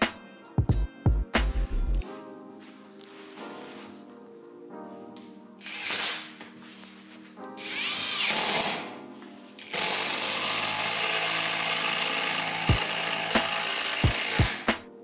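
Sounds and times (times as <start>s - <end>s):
impact driver motor running: 9.8s - 14.6s.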